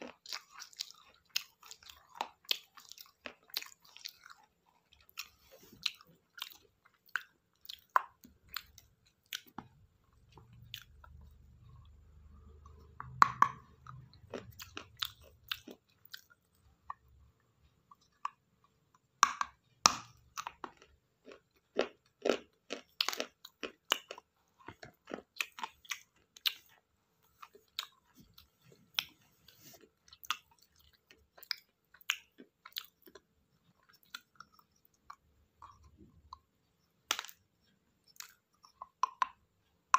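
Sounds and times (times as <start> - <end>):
chewing broken clay pot: 0.0 - 17.1, 19.0 - 39.5.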